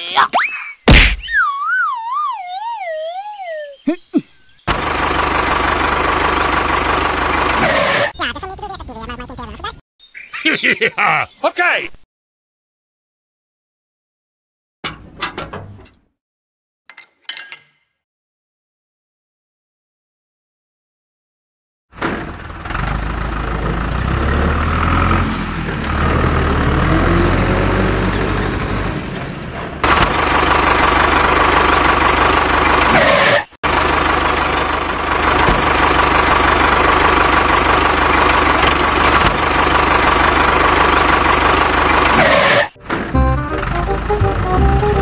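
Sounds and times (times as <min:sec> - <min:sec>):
heavy vehicle engine running: 0:04.7 - 0:08.1, 0:22.0 - 0:45.0.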